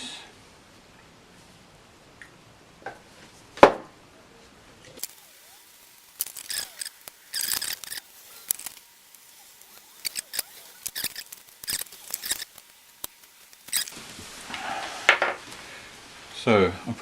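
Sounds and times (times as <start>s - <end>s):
cotton buds scrubbing metal shaft: 5.0s - 14.0s.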